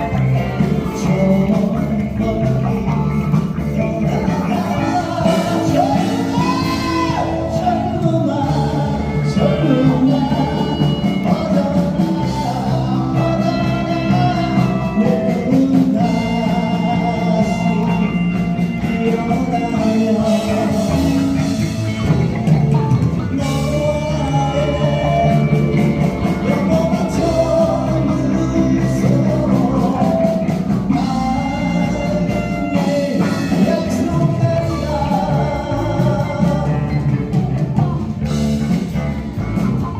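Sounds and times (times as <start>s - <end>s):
bass: 0.0s - 39.9s
drum kit: 0.0s - 39.9s
electric guitar: 0.0s - 39.9s
person singing: 0.0s - 39.9s.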